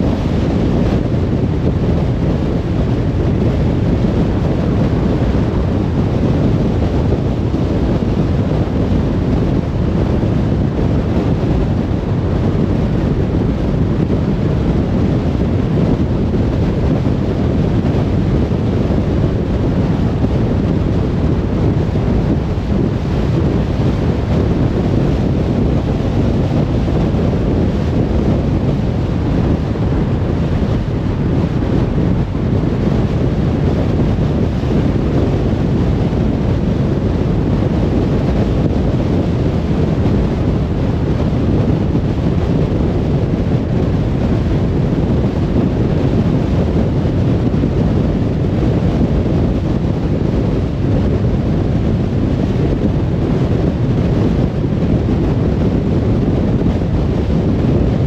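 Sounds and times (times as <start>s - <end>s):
car tyre and wind rumble: 0.0s - 58.0s.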